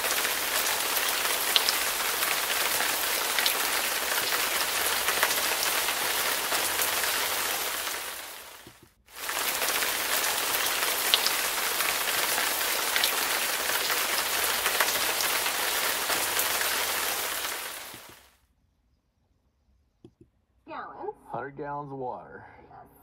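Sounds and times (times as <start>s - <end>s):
heavy rain falling: 0.0s - 18.3s
rain drop ticks: 0.0s - 18.3s.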